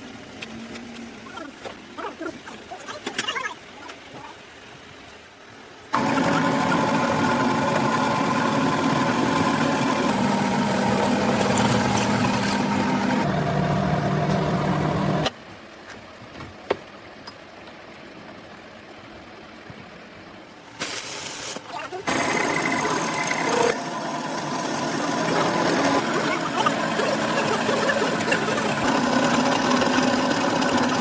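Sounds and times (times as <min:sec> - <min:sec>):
workshop machine humming: 0:06.0 - 0:15.3, 0:22.1 - 0:31.0.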